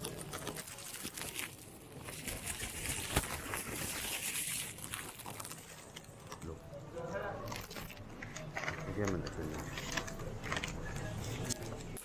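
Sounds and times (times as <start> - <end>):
plastic bag rustling and crinkling: 0.0 - 12.0.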